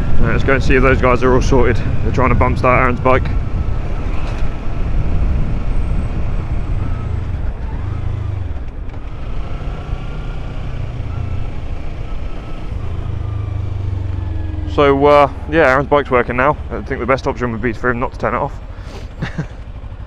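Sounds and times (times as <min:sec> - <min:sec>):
wind rumble on microphone: 0:00.0 - 0:09.5
motorcycle engine running: 0:00.0 - 0:20.0.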